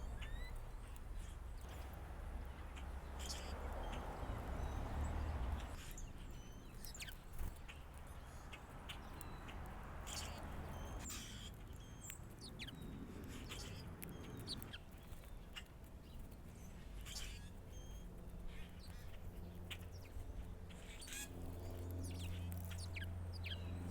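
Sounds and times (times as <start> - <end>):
small birds chirping: 0.0 - 23.9
low background rumble: 13.1 - 23.9.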